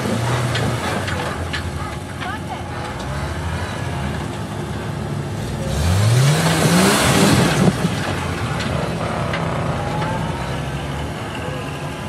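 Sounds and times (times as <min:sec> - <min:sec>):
engine revving hard: 0:05.5 - 0:09.9.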